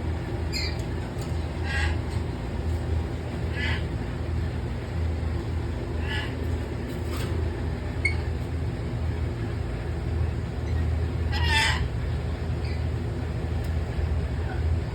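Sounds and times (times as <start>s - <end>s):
steady low hum: 0.0s - 14.9s
parrots squawking: 1.5s - 2.2s, 3.3s - 4.0s, 6.0s - 6.5s, 10.7s - 12.0s.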